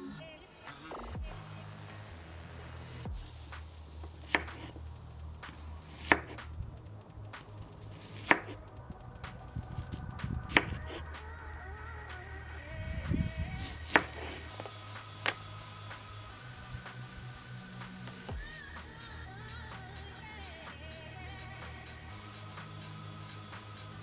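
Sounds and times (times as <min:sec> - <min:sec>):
knife chopping on cutting board: 0:05.9 - 0:06.4, 0:07.9 - 0:08.6, 0:13.9 - 0:14.3.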